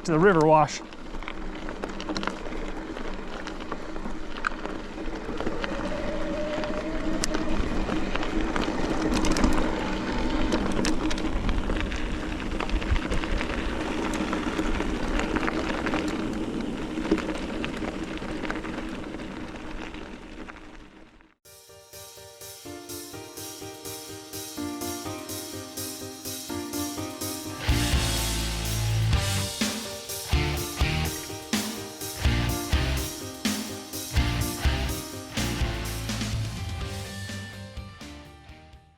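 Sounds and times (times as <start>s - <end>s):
bike clicks and rattles: 0.0s - 6.0s, 6.7s - 21.0s
tyre and wind noise: 0.0s - 21.2s.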